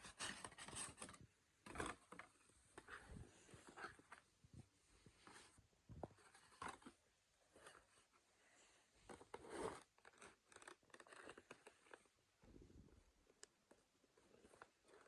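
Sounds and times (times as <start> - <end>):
packaging rustling and scratching: 0.0 - 4.2, 9.1 - 12.1.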